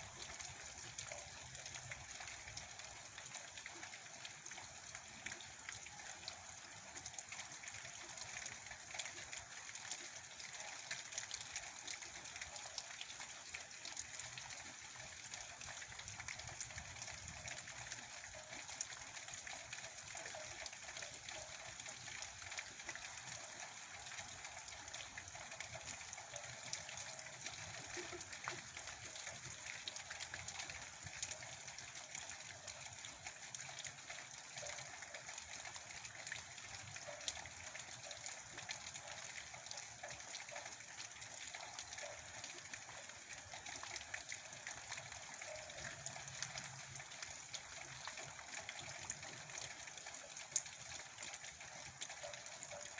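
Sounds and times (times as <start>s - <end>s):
raindrop ticks: 25.0s - 31.4s.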